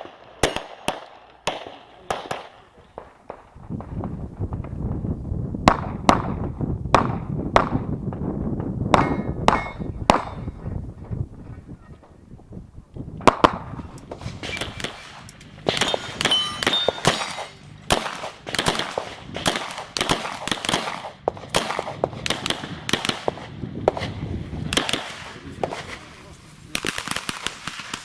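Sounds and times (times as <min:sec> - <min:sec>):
handgun shots: 0:13.3 - 0:24.1, 0:24.7 - 0:25.9
steel targets clanging: 0:14.4 - 0:19.0.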